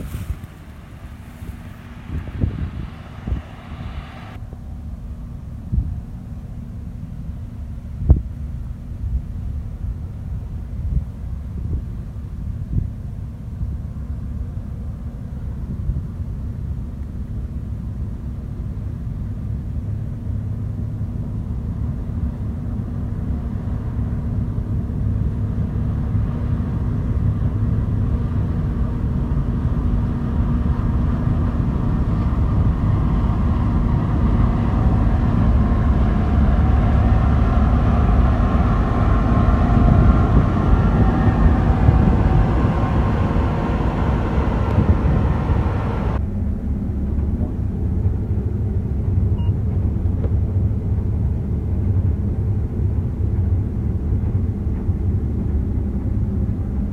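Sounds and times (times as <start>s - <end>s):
combine harvester rumbling: 0.0s - 56.9s
high machine whine: 30.4s - 46.8s.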